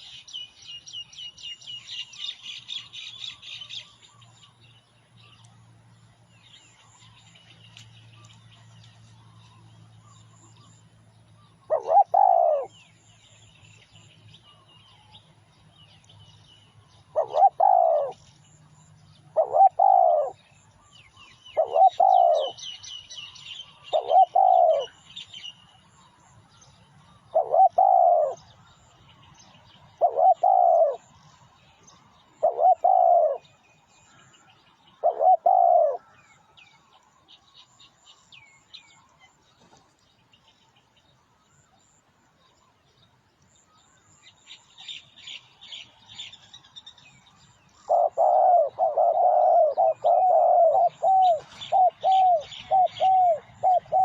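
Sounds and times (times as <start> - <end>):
small birds chirping: 0.0 - 54.0
dove cooing: 11.7 - 12.8, 17.1 - 18.2, 19.2 - 20.6, 21.5 - 22.8, 23.7 - 25.0, 27.2 - 28.5, 29.9 - 31.1, 32.4 - 33.6, 35.0 - 36.2, 47.8 - 54.0.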